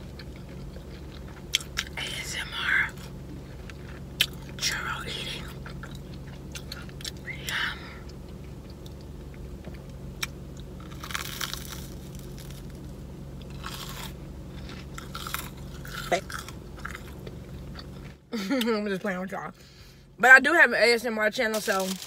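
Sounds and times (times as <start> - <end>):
crunching chewing: 0.0 - 18.6
crunchy bites of fried pastry: 9.8 - 18.2.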